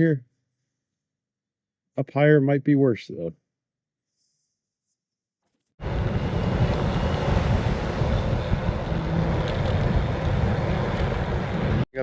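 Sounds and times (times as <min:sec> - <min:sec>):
wind buffeting microphone: 0:05.8 - 0:11.8.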